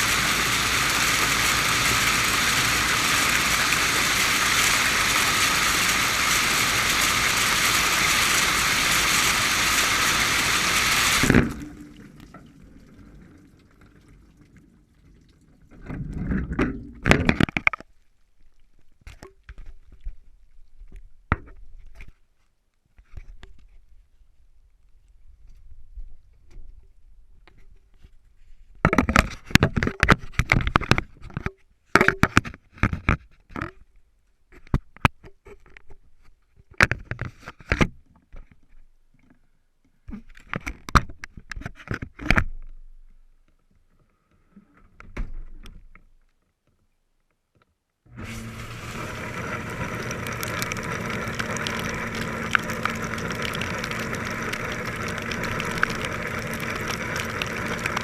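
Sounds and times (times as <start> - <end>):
dishwasher humming and hissing: 0.0 - 12.1, 48.1 - 58.0.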